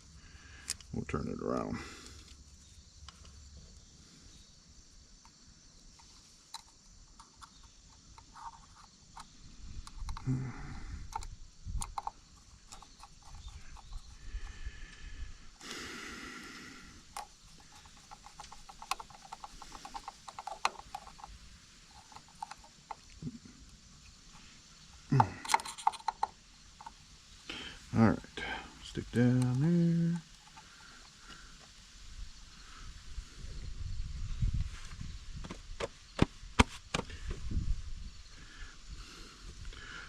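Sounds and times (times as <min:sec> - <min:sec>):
metal parts clicking and scraping: 0:11.0 - 0:14.2, 0:17.1 - 0:23.2, 0:25.2 - 0:27.0.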